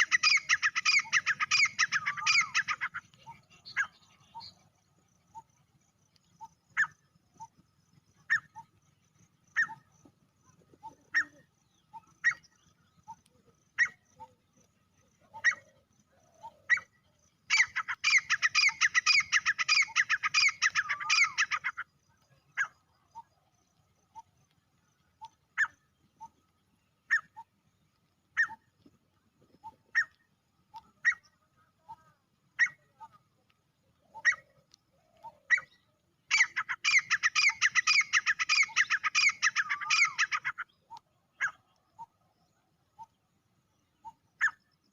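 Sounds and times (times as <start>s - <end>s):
francolin calling: 0.0s - 4.7s, 9.5s - 14.5s, 15.1s - 23.3s, 33.9s - 42.2s.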